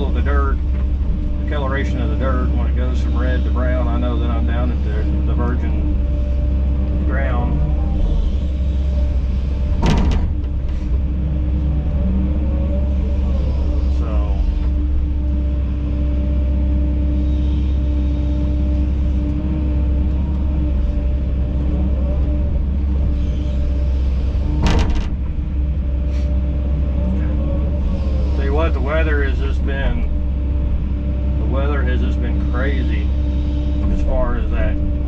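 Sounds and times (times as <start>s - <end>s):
excavator diesel engine running: 0.0s - 35.0s
sharp knocks: 9.7s - 10.8s, 24.6s - 25.4s.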